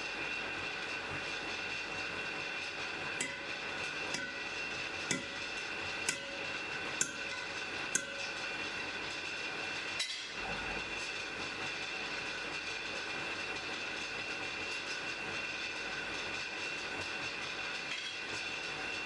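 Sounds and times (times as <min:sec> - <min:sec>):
faint steady whine: 0:03.2 - 0:09.7.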